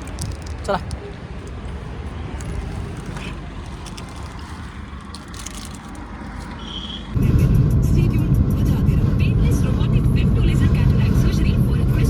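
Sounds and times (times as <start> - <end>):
faint clicks and rattles: 0.0 - 6.6
road traffic rumble: 0.0 - 12.0.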